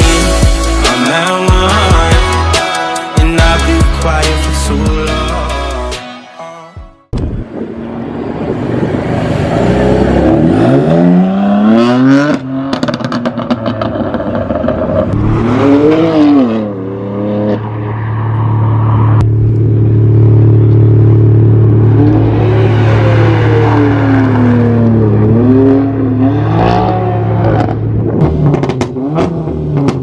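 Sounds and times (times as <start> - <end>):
car engine revving and idling: 7.6 - 30.0
exhaust pops and crackles: 27.6 - 30.0.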